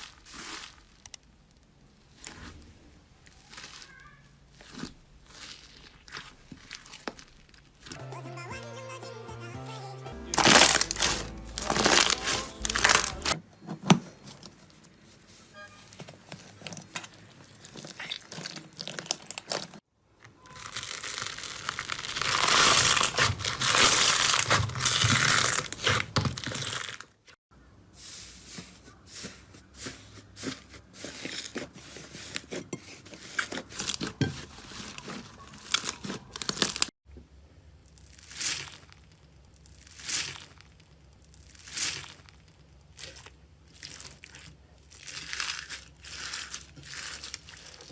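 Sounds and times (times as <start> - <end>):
slime crackling and tearing: 0.0 - 8.0, 10.4 - 13.4, 17.1 - 19.8, 20.4 - 27.2, 33.2 - 36.9, 37.8 - 47.9.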